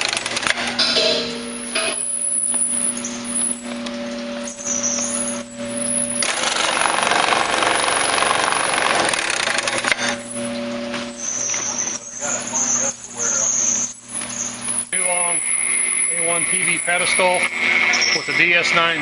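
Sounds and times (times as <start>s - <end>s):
sewing machine stitching clatter: 0.0s - 0.6s, 6.2s - 9.9s
conveyor motor humming: 0.0s - 19.0s.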